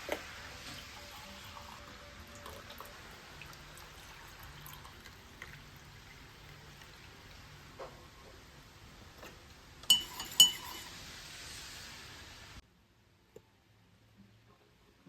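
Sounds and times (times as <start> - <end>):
steady hiss: 2.9 - 12.6
tableware clinking: 9.8 - 11.0.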